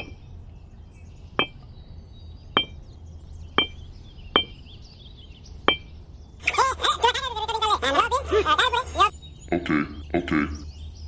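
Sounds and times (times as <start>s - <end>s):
hammer striking metal: 0.0s - 0.2s, 1.4s - 1.6s, 2.6s - 2.8s, 3.6s - 3.8s, 4.4s - 4.6s, 5.7s - 5.9s.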